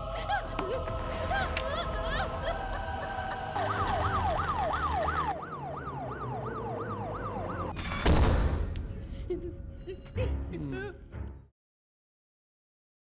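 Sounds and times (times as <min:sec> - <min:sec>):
police siren yelping: 0:03.1 - 0:07.8.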